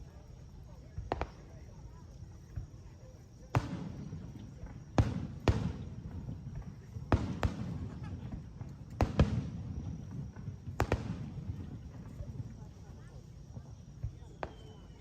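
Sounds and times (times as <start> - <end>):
fireworks bangs: 3.5 - 12.9, 13.5 - 15.0.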